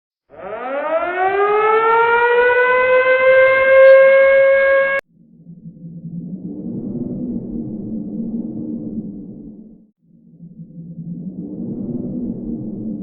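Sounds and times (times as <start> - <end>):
siren wailing: 0.3 - 5.0
low droning rumble: 5.1 - 13.0.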